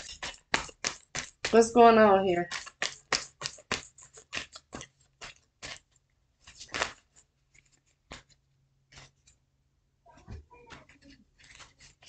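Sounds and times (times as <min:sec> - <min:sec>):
cards shuffling: 0:02.5 - 0:09.4, 0:10.6 - 0:12.0.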